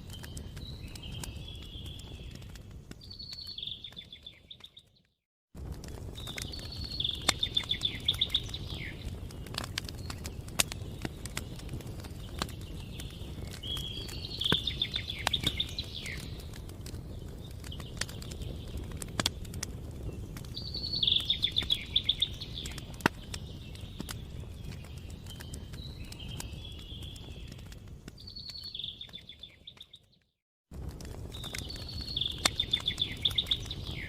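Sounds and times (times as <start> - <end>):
campfire crackling: 0.0 - 4.9, 5.6 - 30.0, 30.7 - 34.0
songbird trilling: 20.6 - 22.8.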